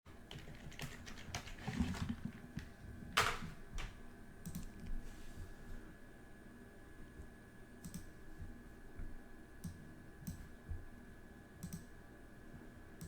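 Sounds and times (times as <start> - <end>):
computer keyboard typing: 0.1 - 4.9.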